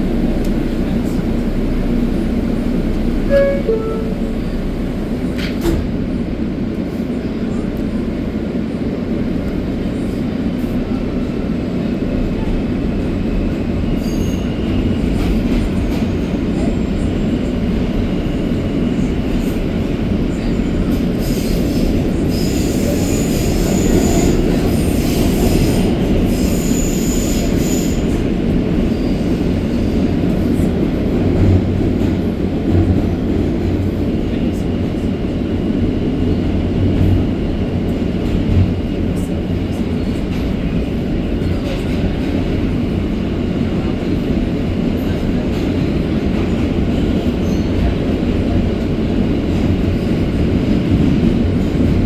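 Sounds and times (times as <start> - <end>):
subway train wheels rumbling: 0.0 - 52.0
high wheel squeals: 3.2 - 4.7.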